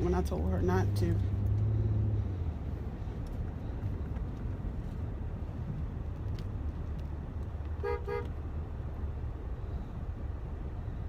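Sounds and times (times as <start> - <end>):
engine and road rumble: 0.0 - 11.0
car horn honks: 7.8 - 8.4.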